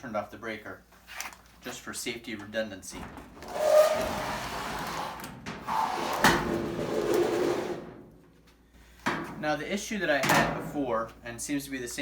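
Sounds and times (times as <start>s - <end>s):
clothes dryer scraping on floor: 3.4s - 8.0s.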